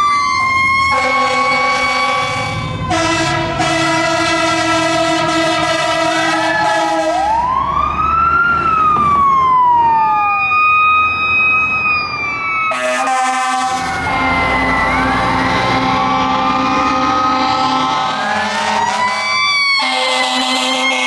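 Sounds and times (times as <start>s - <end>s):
fire truck siren wailing: 0.0s - 21.0s
fire truck horn blaring: 0.8s - 7.5s, 12.7s - 21.0s.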